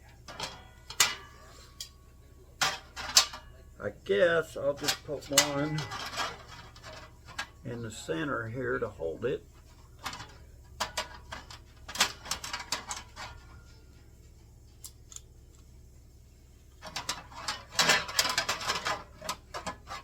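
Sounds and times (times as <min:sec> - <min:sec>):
metal panel being handled: 0:00.2 - 0:02.0, 0:02.6 - 0:14.0, 0:16.8 - 0:20.0
metallic clicks of sheet fasteners: 0:14.7 - 0:15.7.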